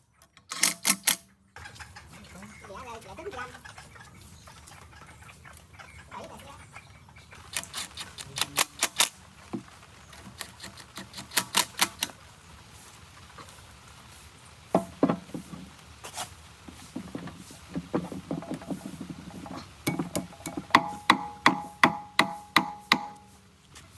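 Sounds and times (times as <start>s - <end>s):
sharp clicks of small hard objects: 7.5s - 9.2s, 10.2s - 12.2s.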